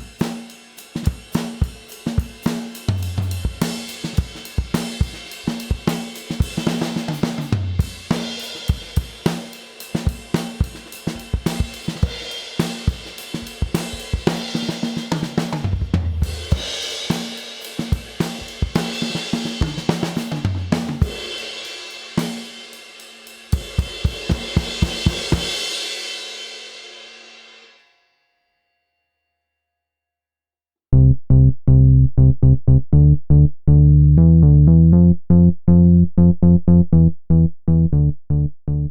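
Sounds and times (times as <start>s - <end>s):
quick drum strokes: 0.0s - 21.5s
drum kit groove: 0.0s - 26.0s.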